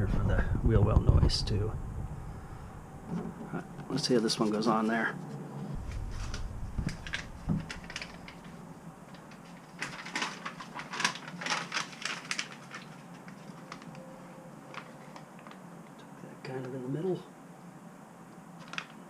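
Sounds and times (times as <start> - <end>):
low thumps on metal panel: 5.7 - 8.5
quick crackling clicks: 5.8 - 14.0.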